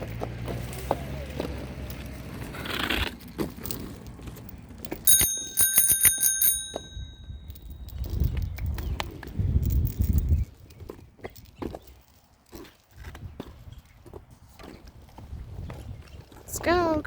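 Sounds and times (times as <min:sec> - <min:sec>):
bicycle bell ringing: 0:05.0 - 0:08.4.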